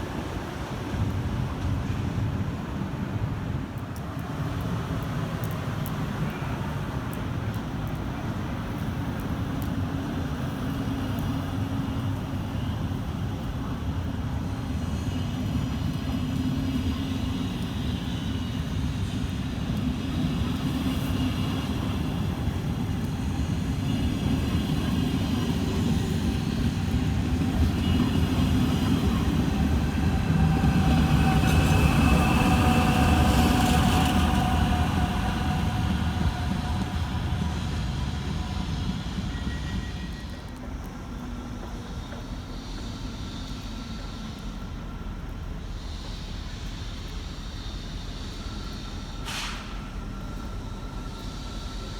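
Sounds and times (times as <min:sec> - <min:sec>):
train rumbling: 0:00.0 - 0:51.9
faint high whining tones: 0:20.3 - 0:51.9.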